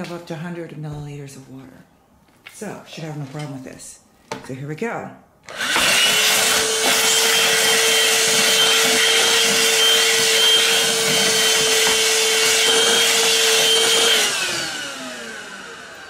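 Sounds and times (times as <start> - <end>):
handheld vacuum whining: 5.4 - 16.0.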